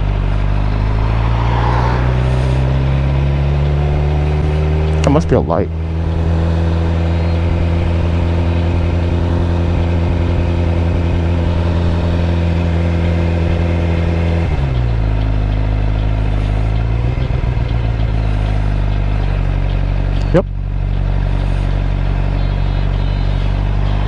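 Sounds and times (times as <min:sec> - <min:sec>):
wind noise: 0:00.0 - 0:04.7
motorcycle engine running: 0:00.0 - 0:24.0.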